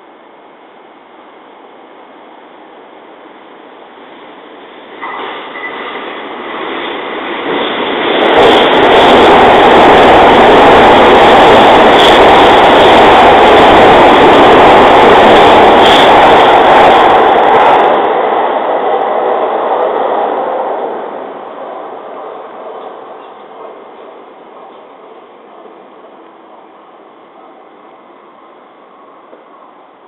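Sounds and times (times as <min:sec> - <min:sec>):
electric train passing: 0:00.0 - 0:30.0.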